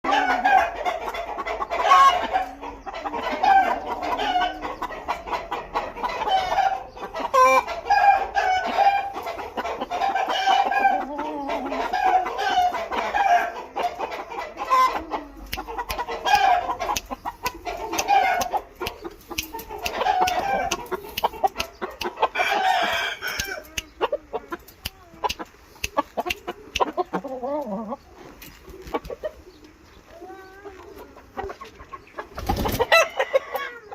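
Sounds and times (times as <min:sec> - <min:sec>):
birds calling: 0:00.1 - 0:33.9
sharp clicks: 0:16.9 - 0:22.2, 0:23.4 - 0:27.1.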